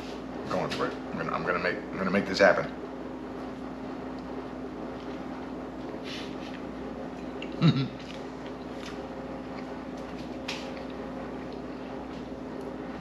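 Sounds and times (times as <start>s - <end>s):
steady low hum: 0.0s - 13.0s
man chewing crispy food: 4.1s - 12.7s
man humming mm: 7.5s - 8.0s.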